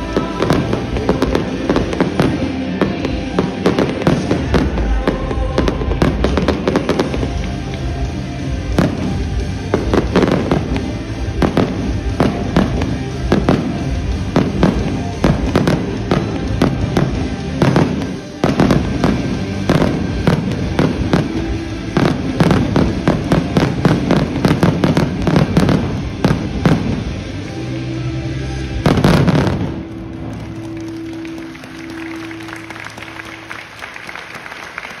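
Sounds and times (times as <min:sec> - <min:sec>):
fireworks banging and crackling: 0:00.0 - 0:35.0
music playing: 0:00.0 - 0:35.0.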